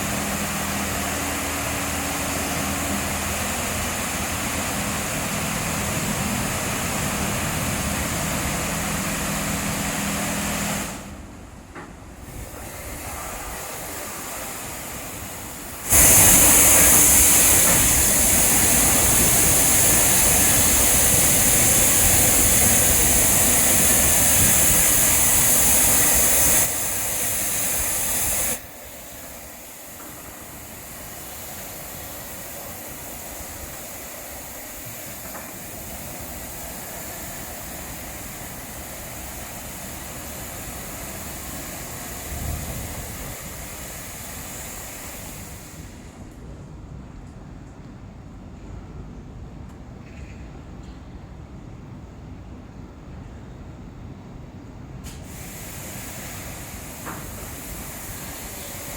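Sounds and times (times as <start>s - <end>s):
high-pressure water-jet hiss: 0.0s - 11.1s, 12.2s - 46.2s, 55.1s - 58.9s
water spray: 12.2s - 45.9s, 55.2s - 58.9s.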